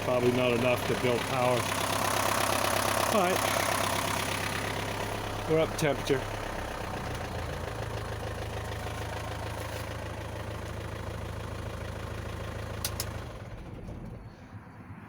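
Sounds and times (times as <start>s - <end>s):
diesel engine idling: 0.0s - 14.8s.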